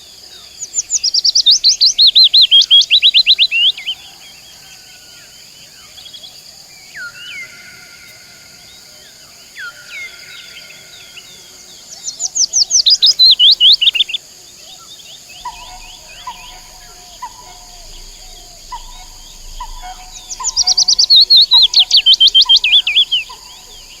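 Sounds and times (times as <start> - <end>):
birds singing: 0.0 - 24.0
high insect drone: 0.0 - 24.0.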